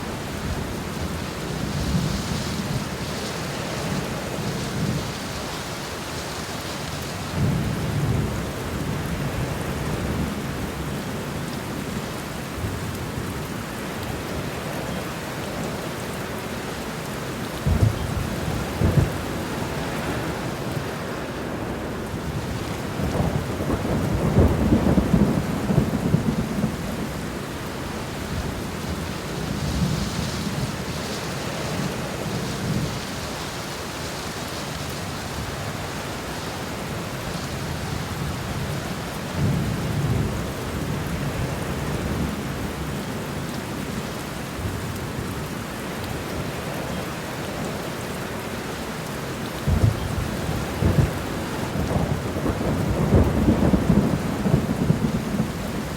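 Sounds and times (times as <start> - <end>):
steady rain falling: 0.0 - 55.9
rolling thunder rumbles: 17.6 - 21.0, 21.6 - 33.2, 49.6 - 55.9.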